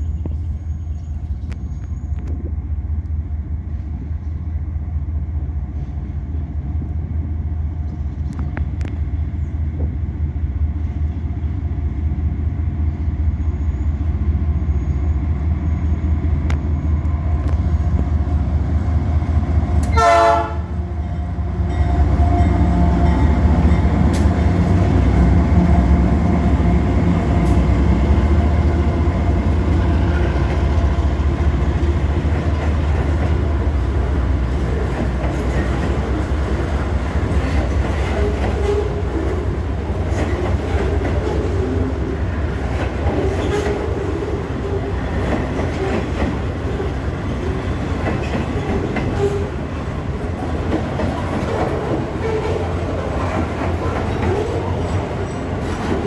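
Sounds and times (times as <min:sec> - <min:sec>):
diesel locomotive engine rumbling: 0:00.0 - 0:56.0
train wheels rolling: 0:15.7 - 0:56.0.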